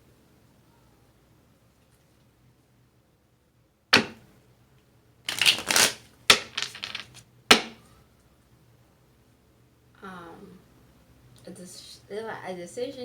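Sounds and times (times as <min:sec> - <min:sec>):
cards shuffling: 0:04.0 - 0:04.2, 0:05.3 - 0:07.8
cards slapped on table: 0:04.0 - 0:04.2, 0:05.3 - 0:07.8.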